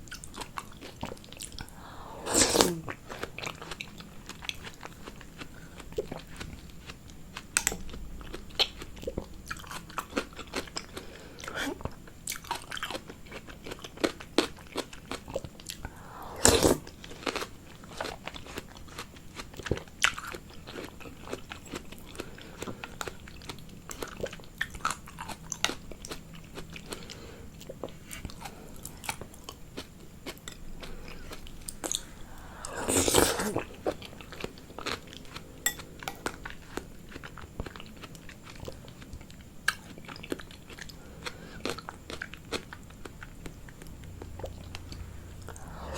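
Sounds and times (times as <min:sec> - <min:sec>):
person chewing food: 0:00.0 - 0:45.9
wet mouth clicks: 0:44.2 - 0:45.9.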